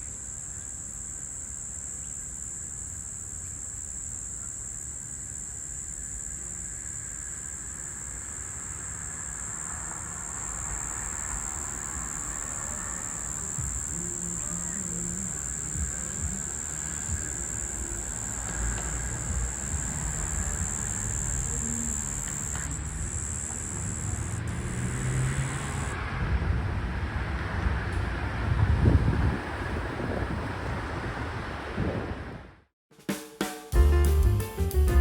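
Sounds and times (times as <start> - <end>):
cicada high-pitched buzz: 0.0 - 26.0.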